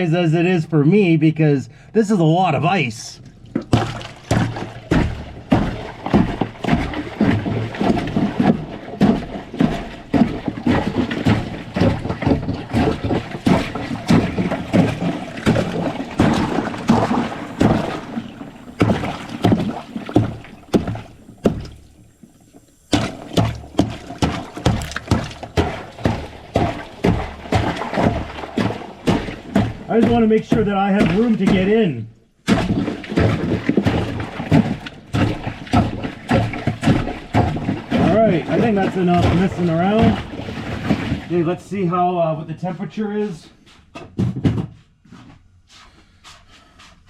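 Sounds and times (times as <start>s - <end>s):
ice chunks knocking and sloshing: 3.3s - 41.9s
ice being smashed: 22.9s - 31.6s.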